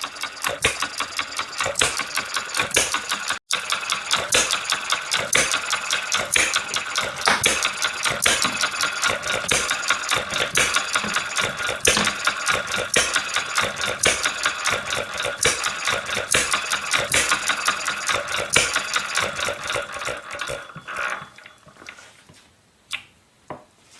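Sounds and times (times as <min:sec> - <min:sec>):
engine knocks: 0:00.0 - 0:20.8
model engine clattering: 0:00.0 - 0:21.5.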